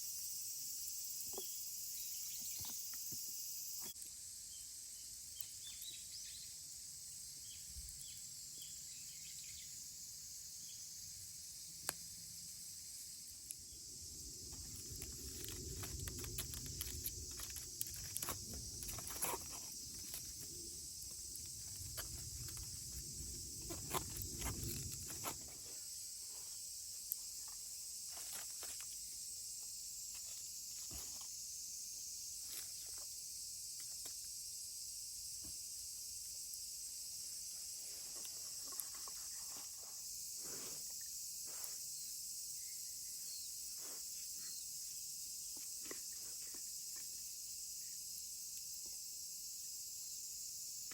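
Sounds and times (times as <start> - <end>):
insects chirring: 0.0 - 50.9
small clicks and crackles: 14.4 - 25.6.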